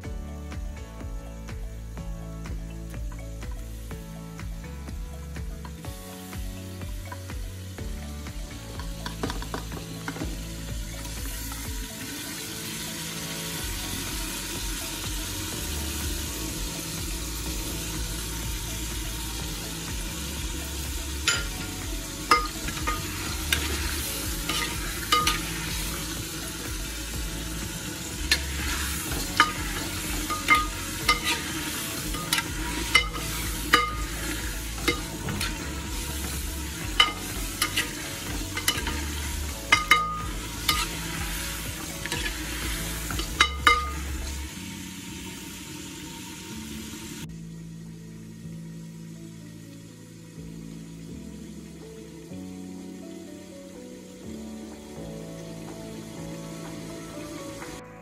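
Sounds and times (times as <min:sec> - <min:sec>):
meat sizzling in hot oil: 0:01.6 - 0:58.0
metal ladle scraping a pot: 0:22.3 - 0:26.1, 0:28.3 - 0:35.7, 0:37.0 - 0:41.2, 0:42.0 - 0:44.1.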